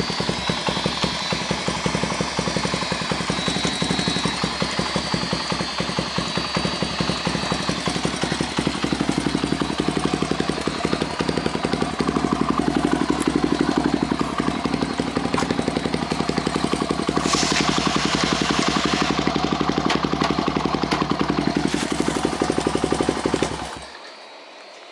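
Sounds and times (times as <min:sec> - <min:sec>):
motorcycle engine idling: 0:00.0 - 0:24.2
brief hiss: 0:17.1 - 0:19.4.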